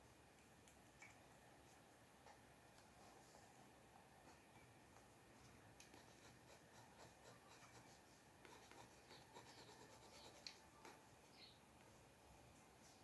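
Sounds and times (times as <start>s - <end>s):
pencil scratching on paper: 5.9s - 11.0s.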